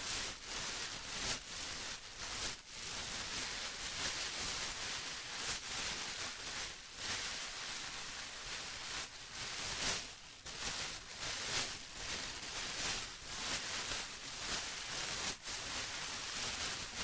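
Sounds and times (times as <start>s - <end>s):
plastic rustling and crinkling: 0.0s - 17.0s.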